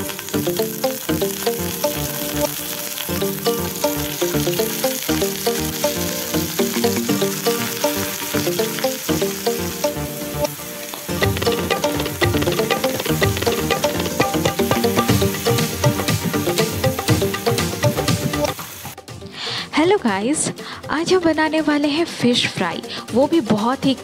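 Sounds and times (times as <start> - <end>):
oil sizzling in a frying pan: 0.0 - 19.0
background music: 0.0 - 24.0.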